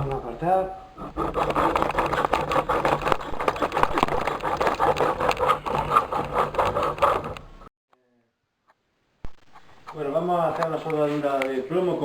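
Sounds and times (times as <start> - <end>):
hand tool rasping lead pipe: 1.0 - 7.7.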